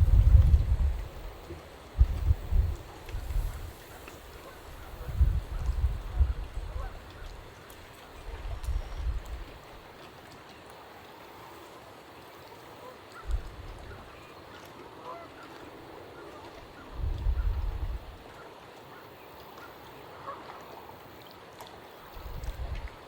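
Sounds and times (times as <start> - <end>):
waterfowl honking: 3.8 - 7.4, 13.9 - 17.4, 18.3 - 21.0.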